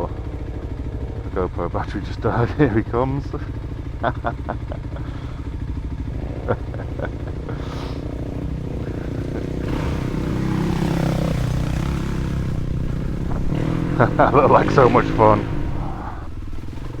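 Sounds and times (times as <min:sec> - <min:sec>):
motorcycle engine running: 0:00.0 - 0:17.0
quad bike passing: 0:00.0 - 0:17.0.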